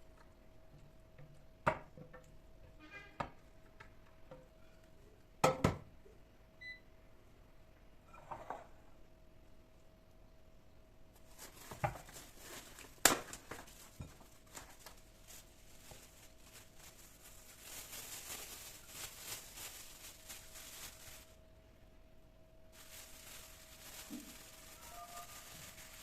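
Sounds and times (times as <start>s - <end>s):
faint steady hum: 0.0s - 26.0s
rustling: 11.2s - 21.4s, 22.7s - 26.0s.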